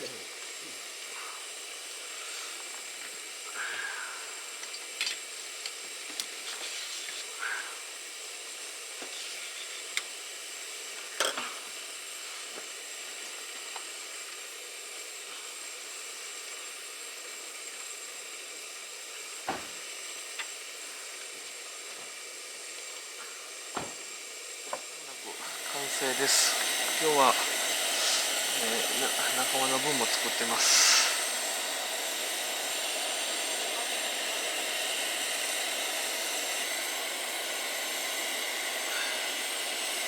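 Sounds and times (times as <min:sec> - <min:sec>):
pot simmering hiss: 0:00.0 - 0:40.0.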